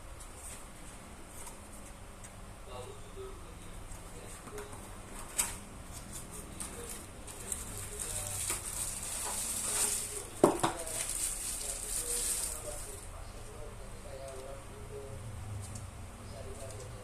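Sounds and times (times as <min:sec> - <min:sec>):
plastic wrapping rustling: 0:05.2 - 0:13.0.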